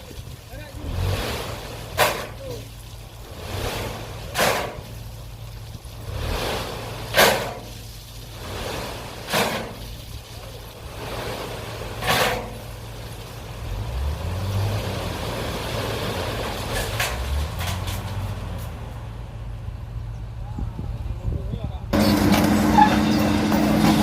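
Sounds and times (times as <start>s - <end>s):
excavator engine running: 22.0s - 24.0s.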